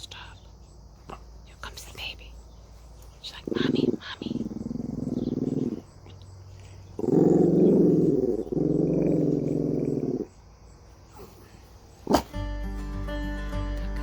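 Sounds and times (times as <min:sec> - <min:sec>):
dog growling: 0:03.4 - 0:06.0, 0:06.8 - 0:10.3, 0:12.0 - 0:12.4.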